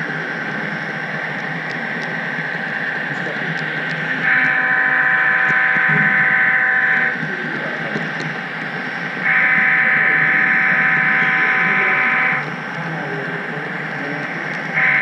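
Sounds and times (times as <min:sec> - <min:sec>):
model train running: 0:00.0 - 0:15.0
model locomotive horn blast: 0:04.2 - 0:07.2, 0:09.2 - 0:12.6, 0:14.8 - 0:15.0.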